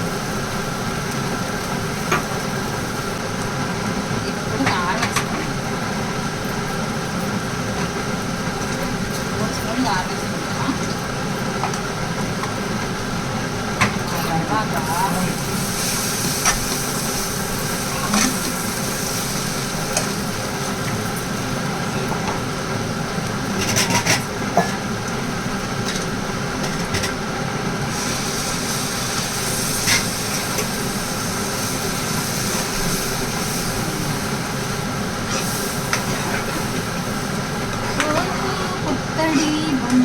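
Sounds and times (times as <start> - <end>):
food frying in a pan: 0.0 - 40.0
steady hum: 26.3 - 40.0.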